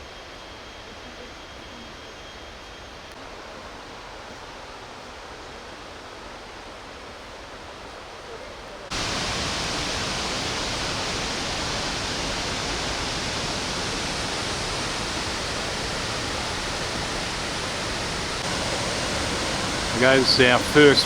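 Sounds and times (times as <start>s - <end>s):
waterfall rushing: 8.9s - 21.0s.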